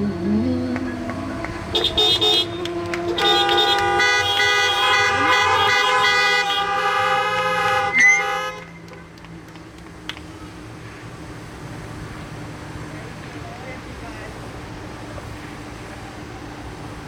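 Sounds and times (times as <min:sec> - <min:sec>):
car horns honking: 0:00.8 - 0:09.2.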